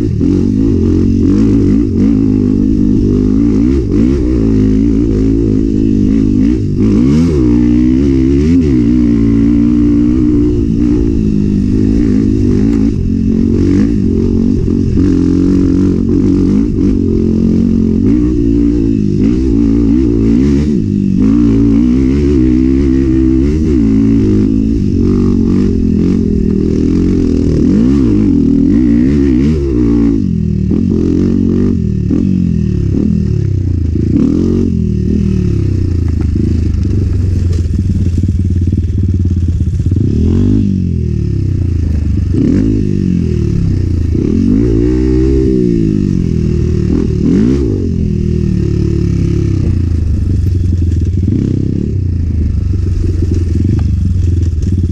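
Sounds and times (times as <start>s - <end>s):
motorcycle engine revving: 0.0s - 54.9s
clatter and scraping: 35.9s - 38.8s, 50.2s - 51.4s, 52.7s - 54.9s.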